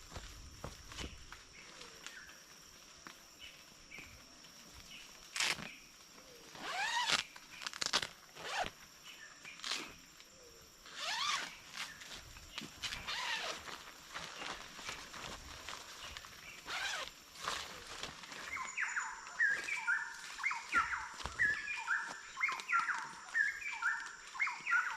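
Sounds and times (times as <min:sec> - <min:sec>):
high insect drone: 0:00.0 - 0:24.9
bird call: 0:18.5 - 0:24.9.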